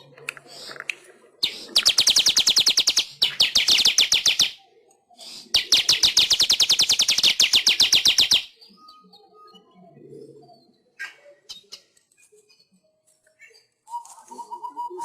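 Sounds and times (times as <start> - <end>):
bird singing rapid trills: 5.6 - 9.6.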